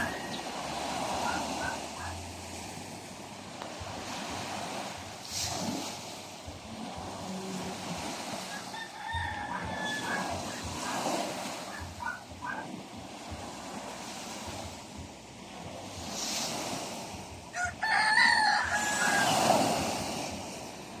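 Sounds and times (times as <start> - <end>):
bird calling: 0.0 - 2.2, 9.5 - 12.7
sea waves surf: 0.0 - 21.0.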